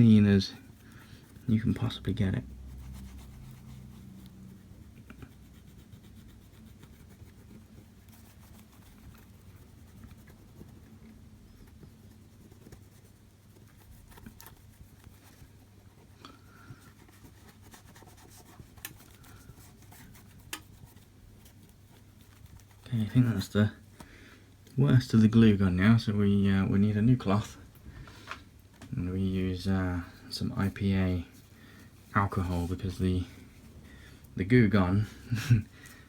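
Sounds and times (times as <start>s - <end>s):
cloth rubbing on glass screen: 0.0s - 23.9s, 30.2s - 33.8s
steady low hum: 0.0s - 36.0s.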